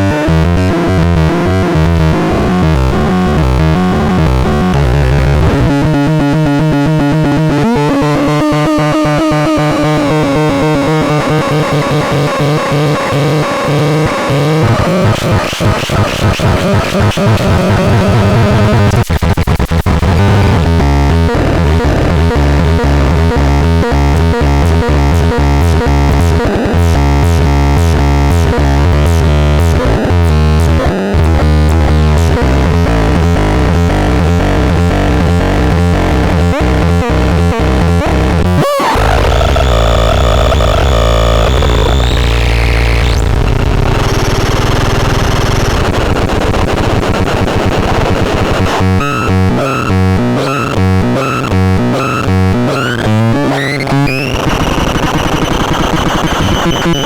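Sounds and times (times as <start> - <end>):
stuttering synthesizer buzzing: 34.4 - 57.0.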